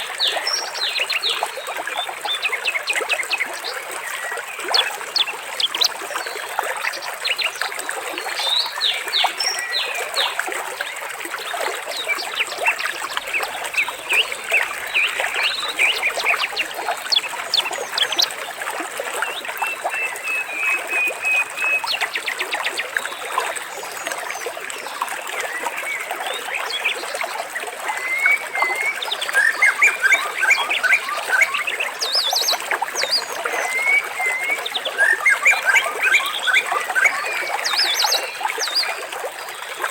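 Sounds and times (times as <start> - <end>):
water trickling: 0.0 - 39.9
birds chirping and calling: 12.0 - 18.4.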